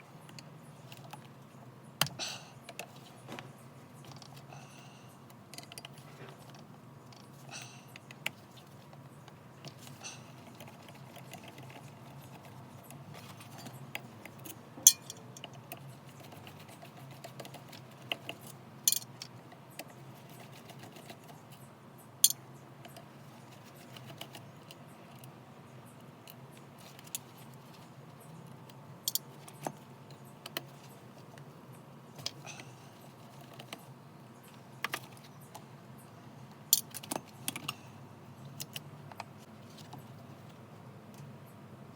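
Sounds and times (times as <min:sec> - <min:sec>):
low steady hum: 0:00.0 - 0:41.9
metallic clicks of tools: 0:13.6 - 0:15.8, 0:18.9 - 0:20.0, 0:29.0 - 0:29.6.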